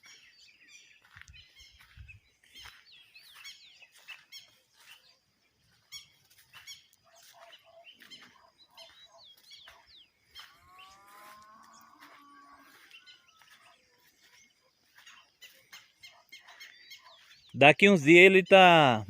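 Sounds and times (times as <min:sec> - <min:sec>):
songbirds chirping: 0:00.0 - 0:19.0
low drawn-out animal call: 0:10.5 - 0:13.4.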